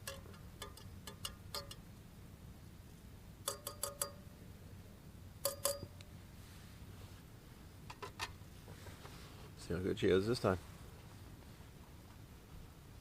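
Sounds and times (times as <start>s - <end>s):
metal cookware clinking: 3.5s - 4.2s, 5.4s - 5.9s.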